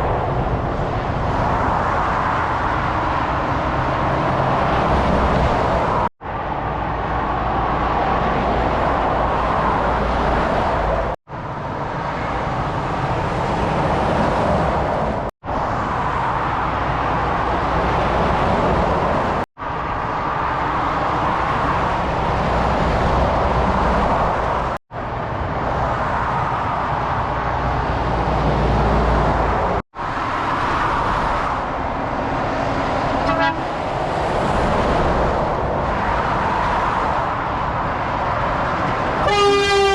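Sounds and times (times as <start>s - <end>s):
motorway traffic rumbling: 0.0s - 39.9s
horn toot: 33.2s - 33.7s, 39.2s - 39.9s.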